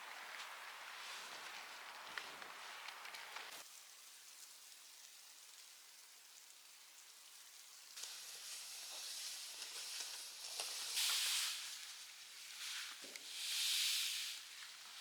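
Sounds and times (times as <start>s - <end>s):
wind and blowing snow hissing: 0.0s - 3.6s, 10.8s - 15.0s
snow ticking on surfaces: 0.0s - 15.0s.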